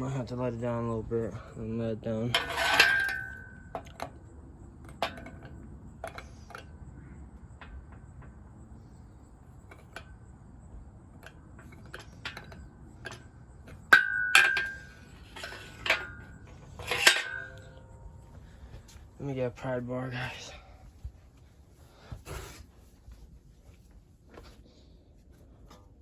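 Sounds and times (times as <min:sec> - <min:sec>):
loud metal clanks: 0:02.3 - 0:04.0, 0:11.6 - 0:18.2
metal hand tools clinking: 0:02.3 - 0:04.0, 0:11.7 - 0:18.2.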